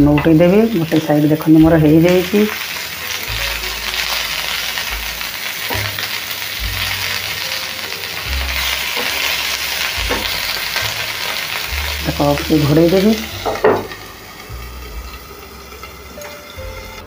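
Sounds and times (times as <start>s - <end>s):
gourds sizzling in oil: 0.0s - 17.0s
spatula turning food in pan: 0.0s - 17.0s.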